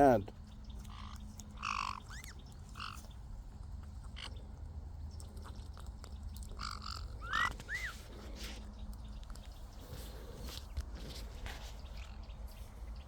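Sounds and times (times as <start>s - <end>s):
parakeets calling: 0.0s - 3.3s, 4.0s - 4.5s, 6.5s - 8.0s
low background rumble: 0.0s - 13.0s.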